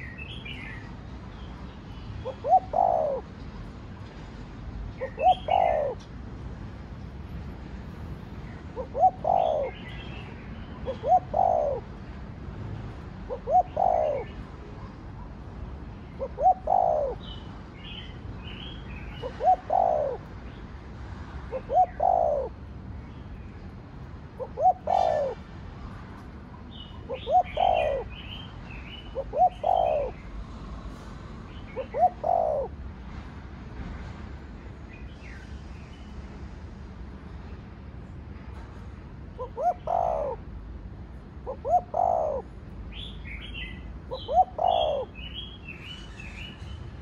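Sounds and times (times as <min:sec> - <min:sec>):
small birds chirping: 0:00.0 - 0:03.2, 0:04.9 - 0:06.1, 0:15.8 - 0:20.7, 0:26.6 - 0:30.4, 0:41.6 - 0:47.0
dove cooing: 0:02.2 - 0:03.3, 0:05.0 - 0:06.1, 0:08.8 - 0:09.9, 0:10.8 - 0:12.0, 0:13.3 - 0:15.0, 0:16.2 - 0:17.3, 0:19.2 - 0:20.3, 0:21.5 - 0:22.6, 0:24.4 - 0:25.4, 0:26.7 - 0:30.2, 0:31.8 - 0:32.8, 0:39.4 - 0:40.5, 0:41.4 - 0:42.6, 0:44.1 - 0:45.3.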